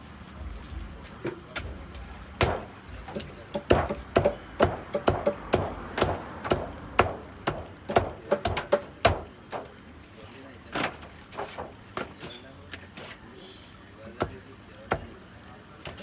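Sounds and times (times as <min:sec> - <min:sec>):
knife chopping fish on board: 0:02.4 - 0:09.7, 0:14.1 - 0:15.1.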